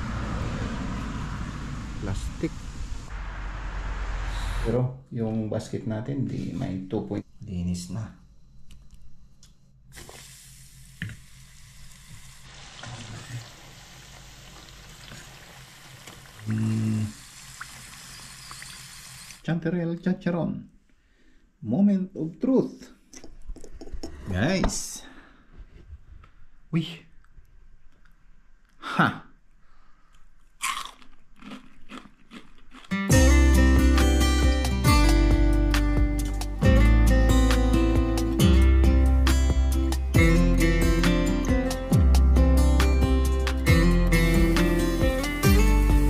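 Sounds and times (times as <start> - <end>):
mushrooms sizzling in oil: 10.9 - 19.4
person exclaiming: 16.5 - 17.2
crispy food crunching: 30.4 - 33.1
acoustic guitar music: 32.9 - 46.0.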